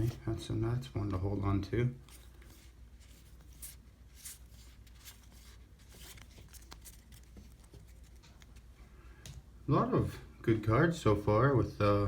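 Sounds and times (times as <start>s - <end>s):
baseball cards rustling: 0.0s - 8.8s
low room hum: 0.0s - 12.0s.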